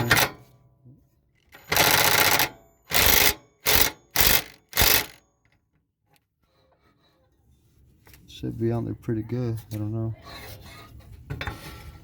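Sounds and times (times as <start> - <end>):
impact driver bursts: 1.6 - 5.2.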